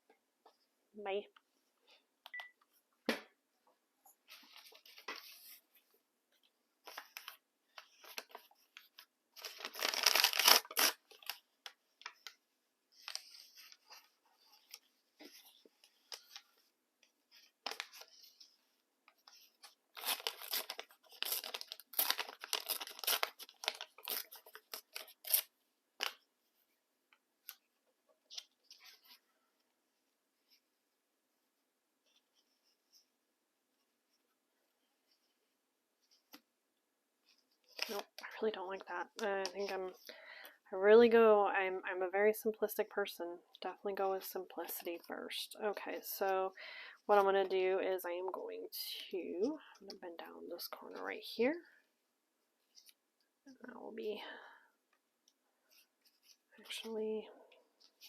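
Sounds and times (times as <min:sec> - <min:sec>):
paper rustling and tearing: 0:06.9 - 0:11.4, 0:19.4 - 0:26.2.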